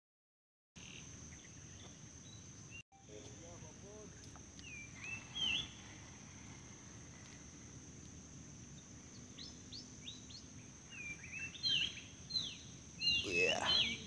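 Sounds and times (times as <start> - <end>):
high-pitched insect drone: 3.0 - 14.0
small bird whistled chirps: 4.6 - 5.8, 9.1 - 14.0.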